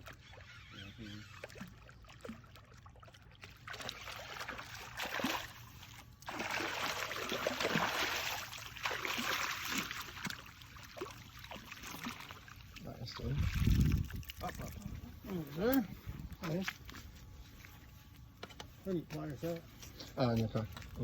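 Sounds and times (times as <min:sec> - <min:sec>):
shark thrashing and splashing water: 0:01.3 - 0:12.8.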